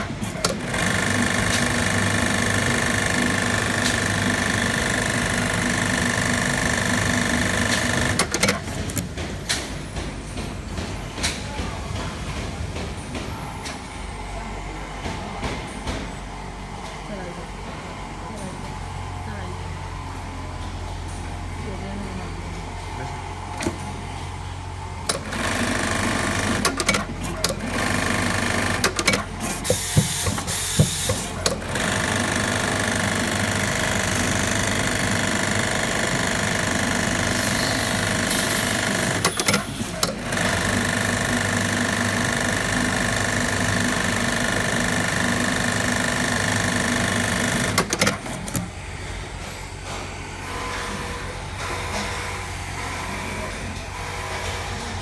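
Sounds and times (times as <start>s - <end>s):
sewing machine running: 0.0s - 9.0s, 25.0s - 48.7s.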